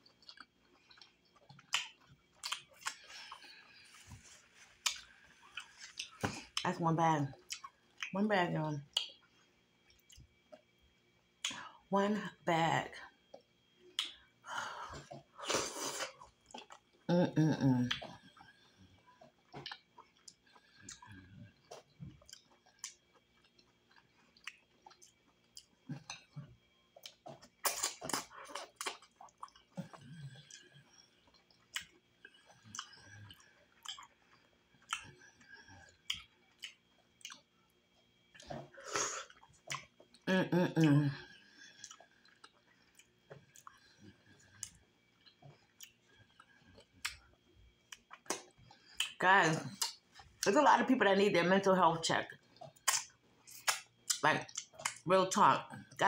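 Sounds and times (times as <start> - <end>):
wet chewing and mouth clicks: 0.0 - 6.7, 7.3 - 8.2, 8.8 - 11.7, 13.2 - 14.4, 15.0 - 17.1, 17.9 - 50.5, 52.3 - 55.1.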